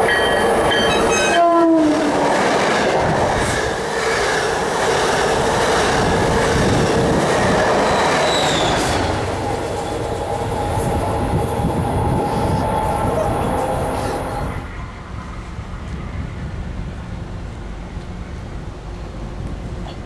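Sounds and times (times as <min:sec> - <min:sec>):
train wheel squeal: 0:00.0 - 0:01.4, 0:07.8 - 0:16.3
train wheels rolling on rails: 0:00.0 - 0:20.0.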